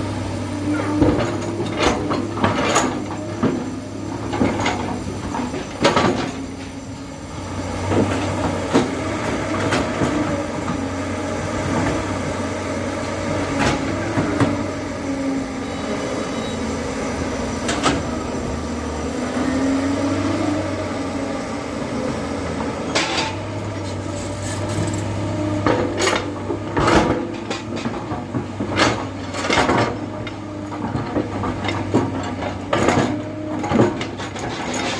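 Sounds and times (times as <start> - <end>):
diesel engine under load: 0.0 - 34.9.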